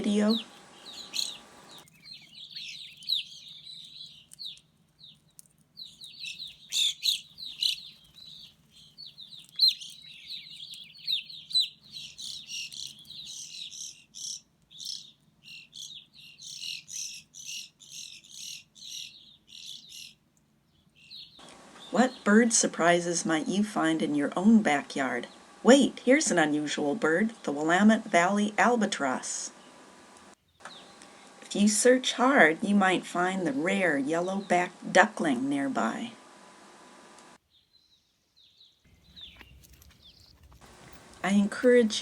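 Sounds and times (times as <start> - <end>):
grosbeaks chirping: 0.0 - 24.0, 29.5 - 31.3, 37.5 - 42.0
faint low hum: 0.0 - 37.4, 38.9 - 42.0.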